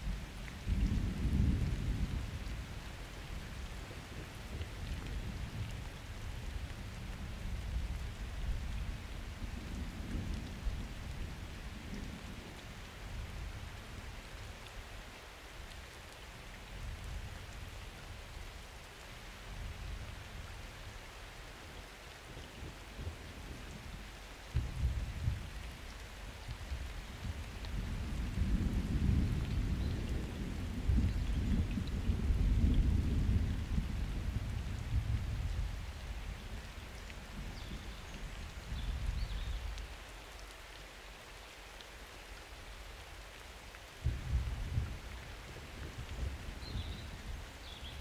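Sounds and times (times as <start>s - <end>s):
steady rain: 0.0s - 48.0s
thunder rumbling: 44.0s - 48.0s.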